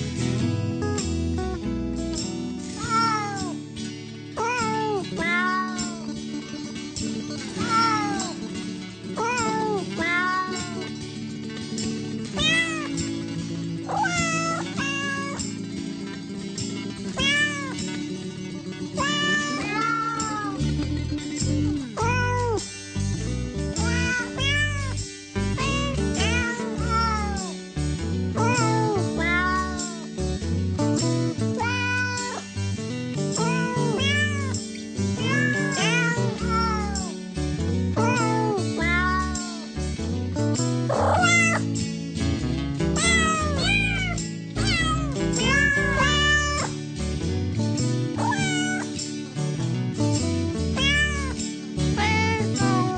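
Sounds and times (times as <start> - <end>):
background music: 0.0 - 52.9
cat meowing: 2.8 - 3.6, 4.4 - 6.1, 7.6 - 8.4, 9.2 - 10.9, 12.4 - 13.0, 13.9 - 15.4, 17.2 - 17.8, 19.0 - 20.6, 21.7 - 22.7, 23.8 - 25.0, 25.6 - 27.5, 28.4 - 30.1, 31.6 - 32.5, 33.4 - 34.6, 35.2 - 37.2, 38.0 - 39.6, 40.9 - 41.7, 43.0 - 46.8, 48.2 - 48.9, 50.7 - 51.4, 52.0 - 52.9.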